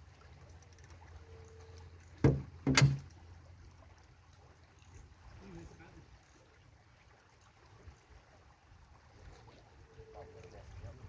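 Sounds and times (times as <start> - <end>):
loud knocks: 2.2 - 3.0.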